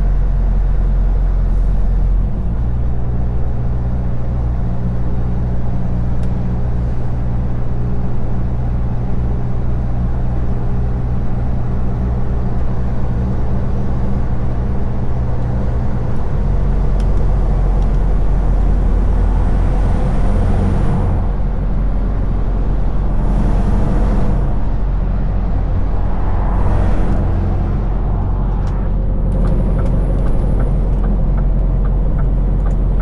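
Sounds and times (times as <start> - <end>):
truck engine running: 0.0 - 33.0
brief whooshes: 25.3 - 29.2.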